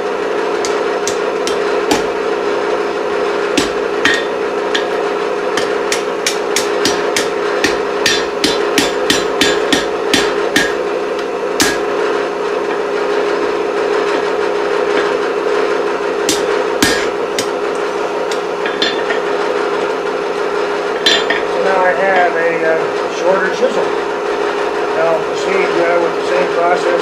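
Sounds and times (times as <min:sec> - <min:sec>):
steady hum: 0:00.0 - 0:27.0
hammer striking hot steel on anvil: 0:00.6 - 0:02.3, 0:03.5 - 0:12.0, 0:12.6 - 0:13.0, 0:14.9 - 0:15.2, 0:16.2 - 0:19.4, 0:20.9 - 0:22.4.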